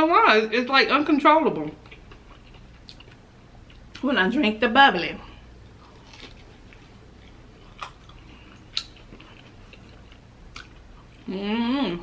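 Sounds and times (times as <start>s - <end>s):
person chewing crunchy food: 1.8s - 4.0s, 5.5s - 11.3s.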